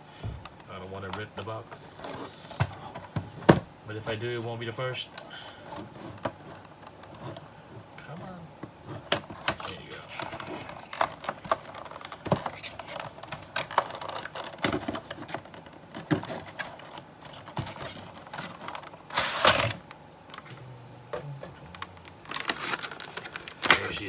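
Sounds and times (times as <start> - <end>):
packaging rustle: 8.8 - 20.5, 21.6 - 24.0.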